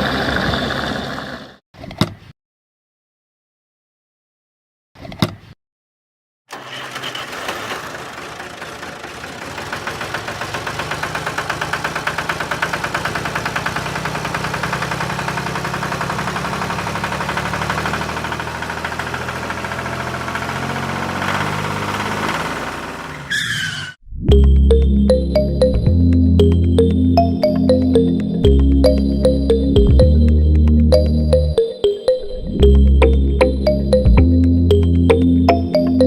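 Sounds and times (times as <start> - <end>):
small engine chugging: 6.5 - 23.4.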